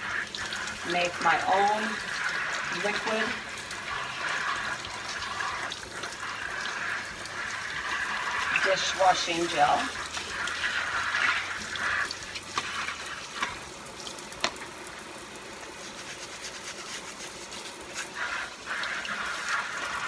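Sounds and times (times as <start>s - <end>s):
tap running into sink: 12.0s - 14.7s.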